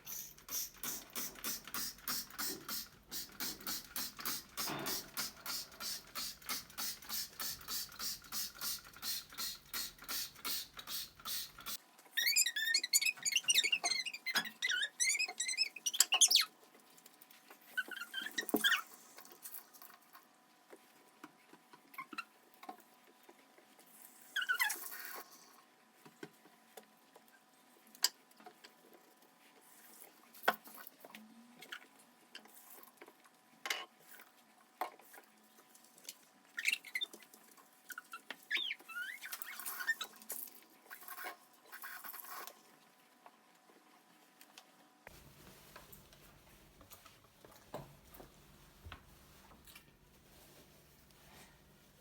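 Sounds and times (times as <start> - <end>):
short high squeaks: 12.2 - 16.5, 17.8 - 18.9, 24.3 - 25.2, 38.0 - 40.2.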